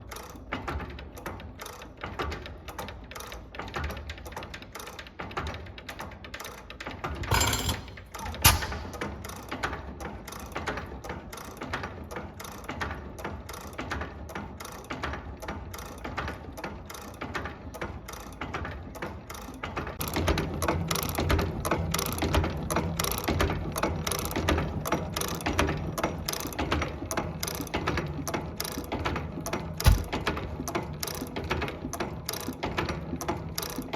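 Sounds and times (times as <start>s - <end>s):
sharp knock: 29.9s - 30.2s.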